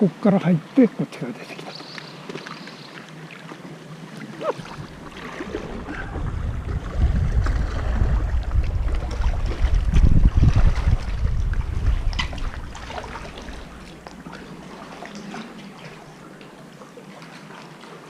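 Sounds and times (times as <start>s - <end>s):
sea water washing around kayak: 0.0s - 18.0s
wind buffeting microphone: 4.4s - 14.7s.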